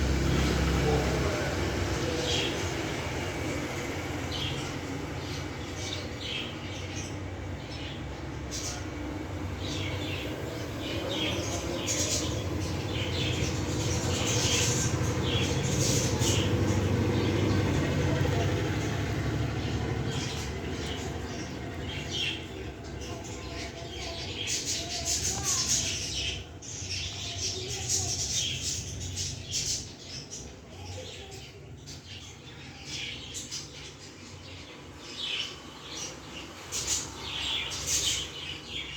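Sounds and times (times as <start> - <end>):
budgerigars chattering and chirping: 0.1 - 38.9.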